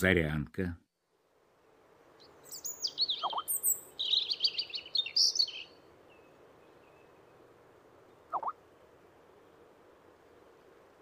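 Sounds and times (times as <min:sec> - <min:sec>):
robin singing warbling notes: 0:08.3 - 0:08.6.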